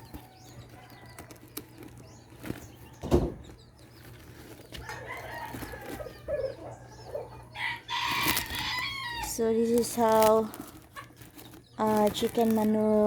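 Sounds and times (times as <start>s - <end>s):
thump: 3.0s - 3.5s
rooster crowing: 4.8s - 6.6s, 7.5s - 9.3s.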